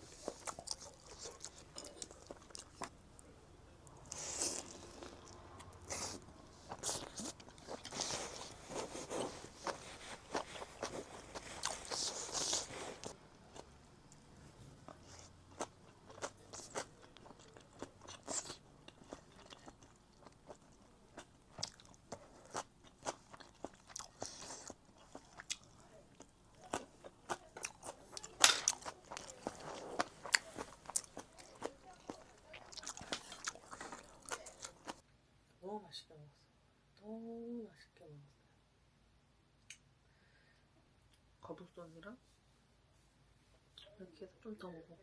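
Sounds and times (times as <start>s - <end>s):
chewing and crunching food: 0.0s - 3.3s, 3.9s - 35.0s.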